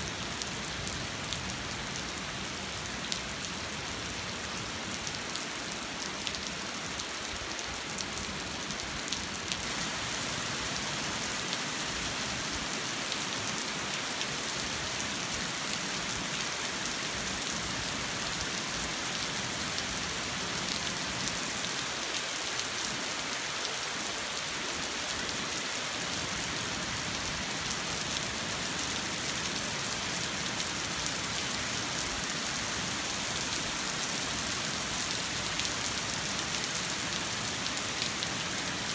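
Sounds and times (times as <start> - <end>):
rain pattering on pavement: 0.1 - 38.9.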